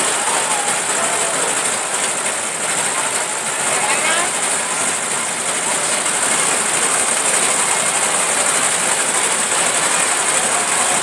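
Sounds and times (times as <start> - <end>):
tractor engines running: 0.0 - 11.0.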